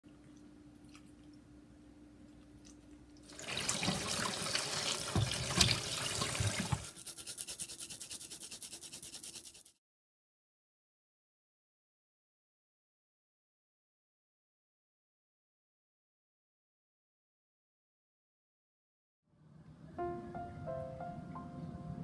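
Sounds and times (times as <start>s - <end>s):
tap water running into metal bowl: 3.2s - 6.9s
garlic grating on hand grater: 6.4s - 9.8s.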